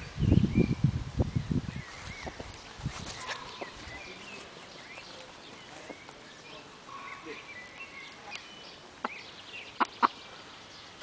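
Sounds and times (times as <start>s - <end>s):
small birds chirping: 0.0s - 11.0s
chickens clucking or pecking: 8.3s - 10.3s.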